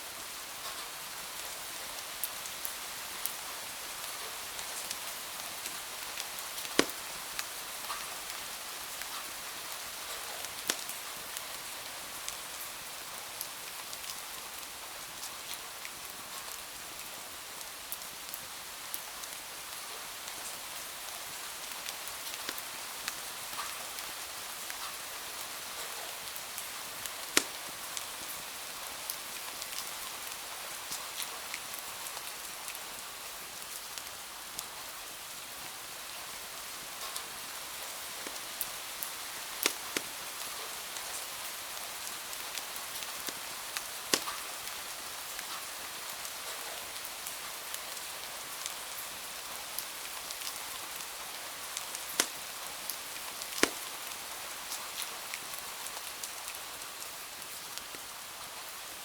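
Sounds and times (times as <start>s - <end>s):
rain hiss: 0.0s - 59.0s
wood fire crackling: 5.6s - 7.5s, 26.4s - 28.3s, 37.0s - 45.5s, 50.3s - 55.5s
fire popping: 6.6s - 7.1s, 27.1s - 27.7s, 39.5s - 40.2s, 42.5s - 44.5s, 51.8s - 52.4s, 53.4s - 54.0s.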